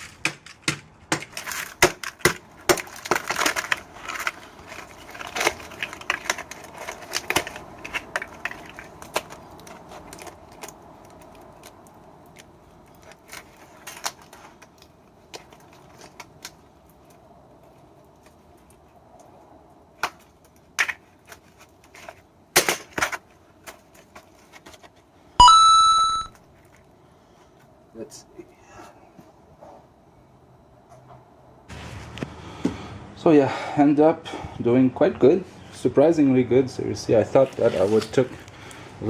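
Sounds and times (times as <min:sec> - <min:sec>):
electronic beep: 0:25.4 - 0:26.3.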